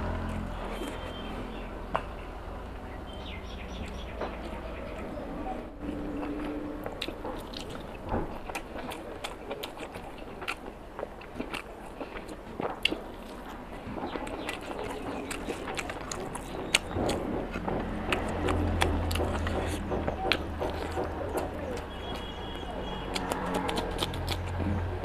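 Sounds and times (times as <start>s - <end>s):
close chewing with wet mouth clicks: 6.1s - 25.0s.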